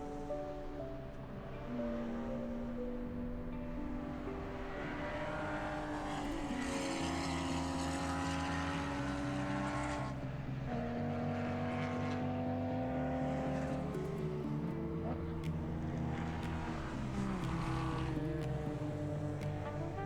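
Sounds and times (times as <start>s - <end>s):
motorcycle engine running: 6.0s - 20.0s.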